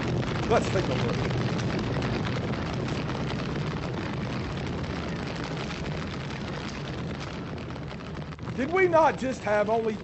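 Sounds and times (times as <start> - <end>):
faint fire crackle: 0.0 - 10.0
roaring furnace fire: 0.0 - 10.0.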